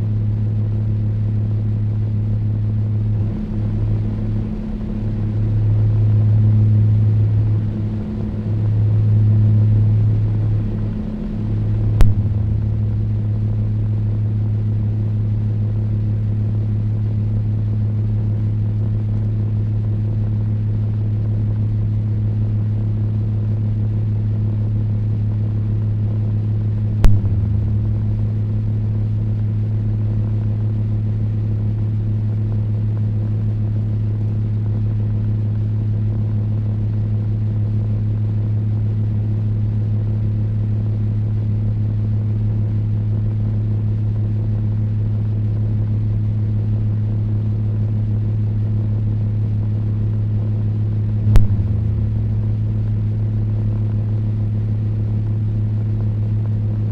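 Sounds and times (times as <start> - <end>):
table fan humming: 26.6 - 30.6.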